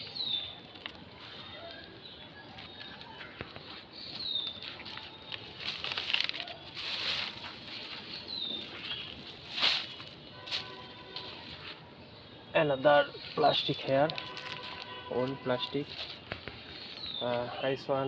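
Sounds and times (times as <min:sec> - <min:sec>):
bird chirping: 0:00.0 - 0:05.8, 0:06.4 - 0:18.0
plastic litter rustling: 0:04.6 - 0:11.9, 0:13.4 - 0:16.9.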